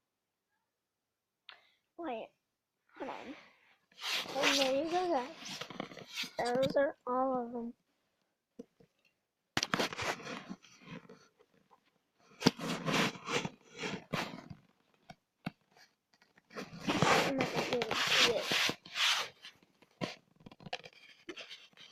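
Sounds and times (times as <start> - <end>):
objects being handled: 3.9 - 6.8, 8.6 - 21.9.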